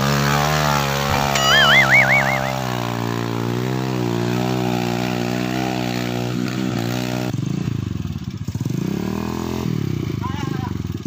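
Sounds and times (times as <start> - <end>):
small motorcycle engine running: 4.8 - 11.0.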